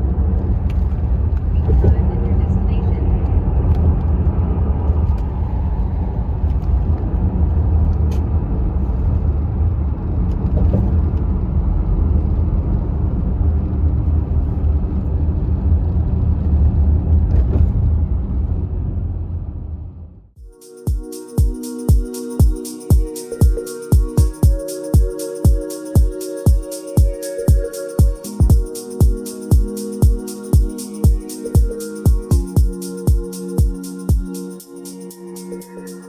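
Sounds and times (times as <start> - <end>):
low vehicle rumble: 0.0 - 20.4.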